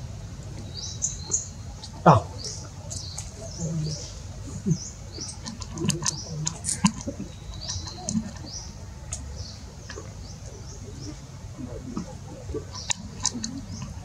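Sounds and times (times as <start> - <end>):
small birds chirping: 0.0 - 14.0
sharp clicks and crackles: 5.3 - 8.5, 11.9 - 14.0.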